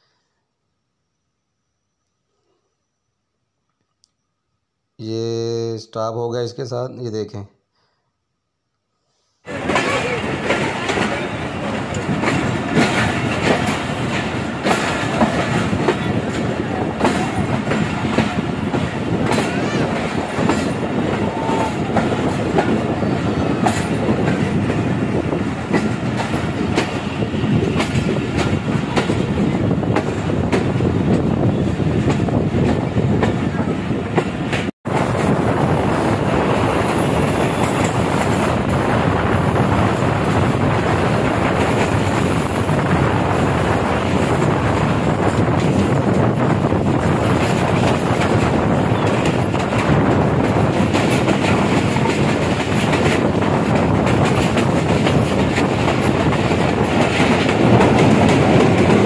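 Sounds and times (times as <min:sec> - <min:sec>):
train coaches rumbling: 0:09.4 - 0:59.0
wheels clacking over rail joints: 0:09.5 - 0:35.4, 0:43.6 - 0:59.0.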